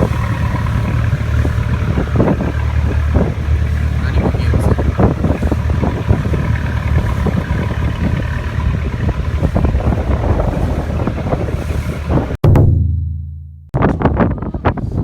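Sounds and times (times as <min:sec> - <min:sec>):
wind buffeting microphone: 0:00.0 - 0:12.4, 0:13.8 - 0:15.0
boat engine running: 0:00.0 - 0:15.0
irregular thumps: 0:12.4 - 0:14.3.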